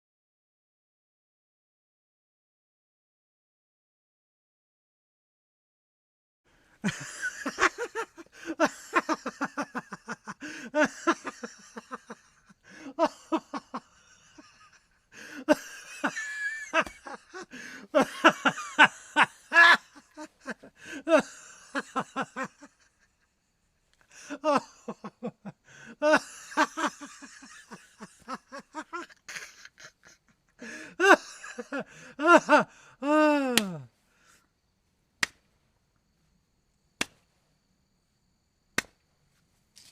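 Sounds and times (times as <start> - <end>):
person laughing: 6.8 - 23.3, 24.1 - 33.9.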